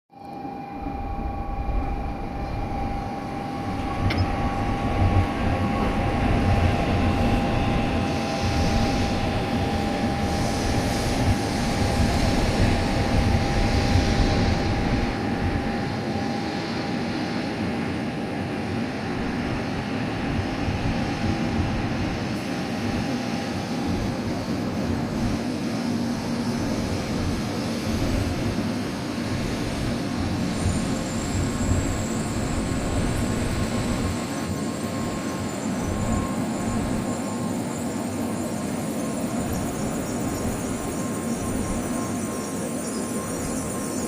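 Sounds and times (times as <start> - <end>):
steady high tone: 0.1 - 17.0.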